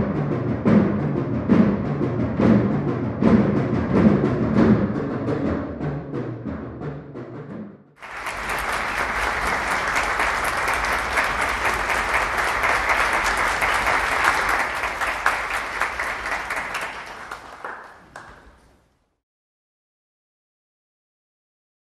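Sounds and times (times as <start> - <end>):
band with timpani: 0.0 - 17.4
audience applause: 8.0 - 18.8.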